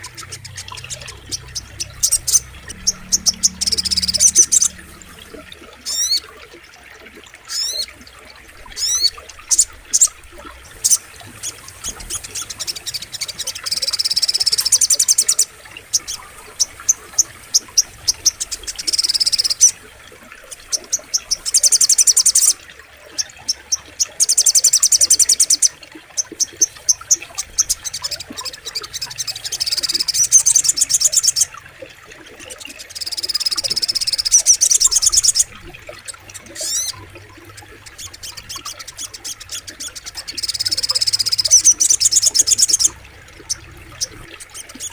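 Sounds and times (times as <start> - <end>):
bird singing fast high trills: 0.0 - 6.2.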